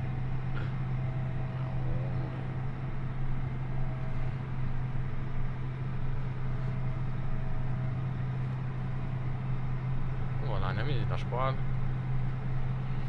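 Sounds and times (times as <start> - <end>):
tractor diesel engine droning: 0.0 - 13.0.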